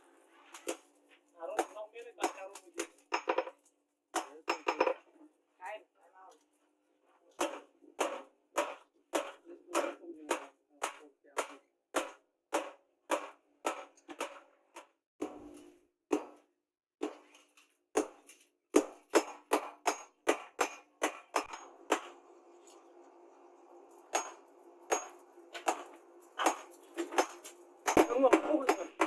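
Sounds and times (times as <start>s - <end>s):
hammer striking steel: 18.0s - 22.8s, 23.8s - 29.0s.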